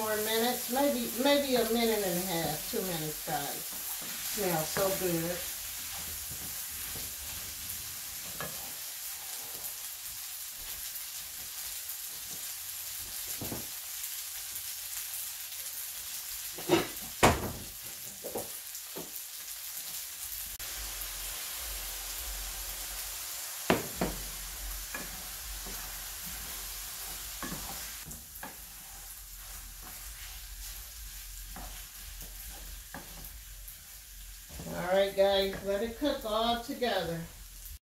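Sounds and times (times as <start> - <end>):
food sizzling in a pan: 0.0 - 37.8.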